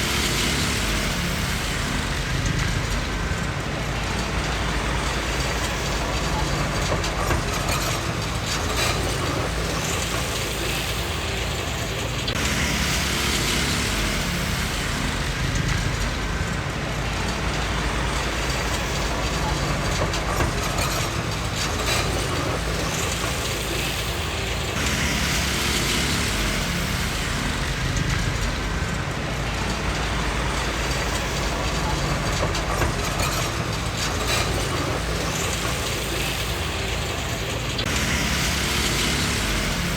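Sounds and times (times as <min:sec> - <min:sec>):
diesel engine running: 0:00.0 - 0:39.9
steel tracks clattering: 0:00.0 - 0:39.9.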